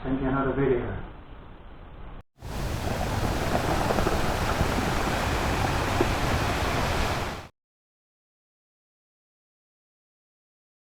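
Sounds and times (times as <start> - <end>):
steady rushing noise: 2.4 - 7.5.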